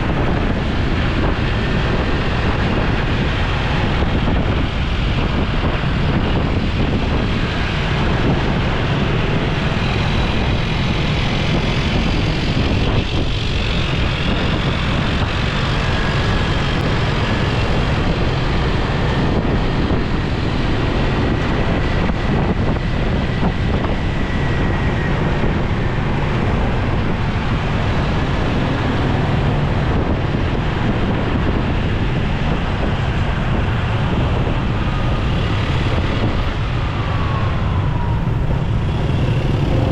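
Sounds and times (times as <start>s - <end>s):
road rumble: 0.0s - 39.9s
wind buffeting microphone: 0.0s - 39.9s
motorcycle engine: 33.0s - 39.9s.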